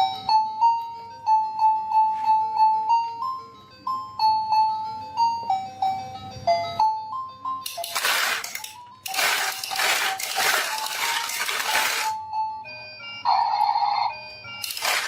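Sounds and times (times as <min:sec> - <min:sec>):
jingly background music: 0:00.0 - 0:15.0
marbles rattling down wooden run: 0:07.7 - 0:12.1, 0:14.6 - 0:15.0.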